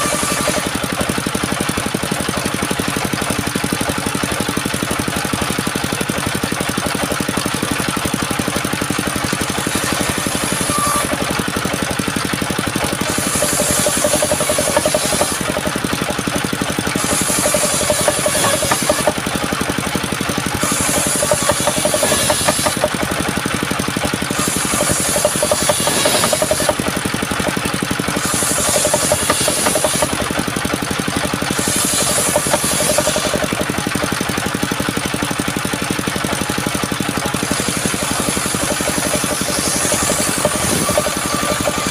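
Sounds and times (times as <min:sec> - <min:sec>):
saw hissing through wood: 0:00.0 - 0:00.8, 0:09.6 - 0:11.2, 0:13.0 - 0:15.6, 0:16.9 - 0:19.2, 0:20.6 - 0:22.9, 0:24.3 - 0:26.9, 0:28.1 - 0:30.3, 0:31.5 - 0:33.6, 0:37.5 - 0:41.9
wood-sawing machine running: 0:00.0 - 0:41.9.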